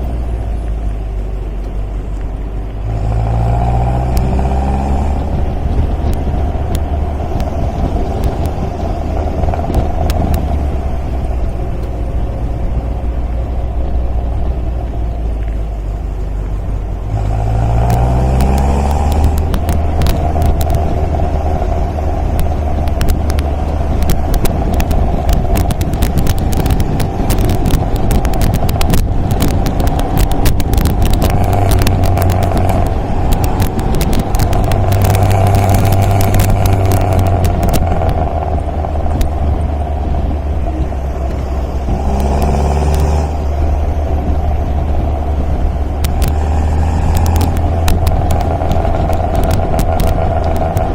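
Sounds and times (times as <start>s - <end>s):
car engine running: 0.0s - 50.9s
sharp clicks and clatter: 1.6s - 50.9s.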